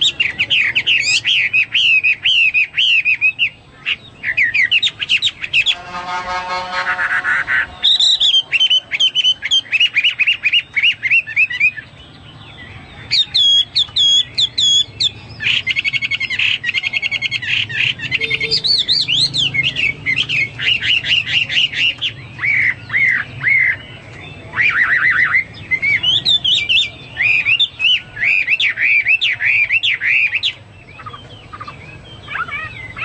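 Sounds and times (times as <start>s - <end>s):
bird singing trills and whistles: 0.0s - 6.0s, 6.9s - 33.0s.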